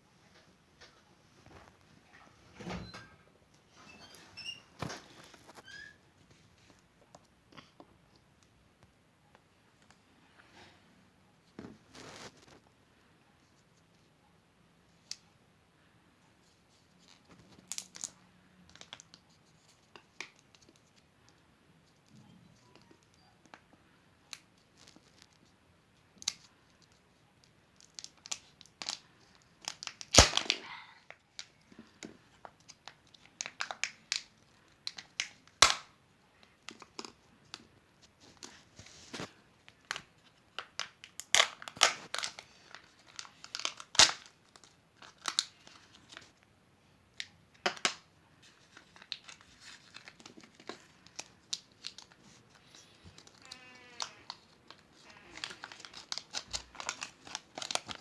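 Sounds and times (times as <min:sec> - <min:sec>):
foil wrappers crinkling and tearing: 0:27.8 - 0:31.7, 0:38.4 - 0:46.4, 0:47.6 - 0:58.0.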